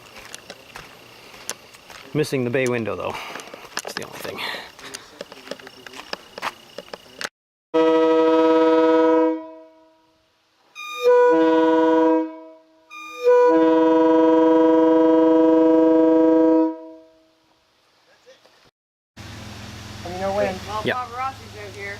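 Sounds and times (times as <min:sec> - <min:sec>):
railway air horn chord: 0:07.8 - 0:10.2, 0:10.8 - 0:17.4.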